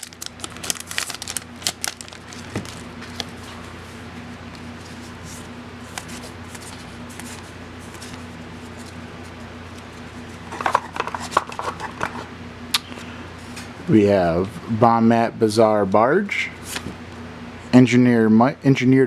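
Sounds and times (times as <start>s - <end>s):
booster pack crinkling: 0.0s - 3.7s
trading cards rustling: 0.0s - 12.2s
low steady hum: 0.0s - 19.0s.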